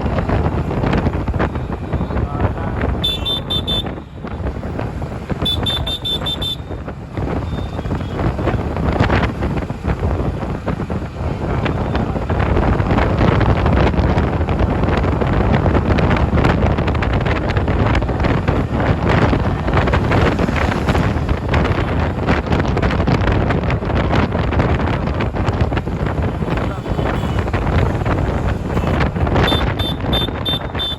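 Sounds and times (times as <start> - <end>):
road traffic: 0.0 - 30.9
wind buffeting microphone: 0.0 - 30.9
vehicle horn beeping: 3.0 - 4.2, 5.4 - 6.8, 26.4 - 30.9.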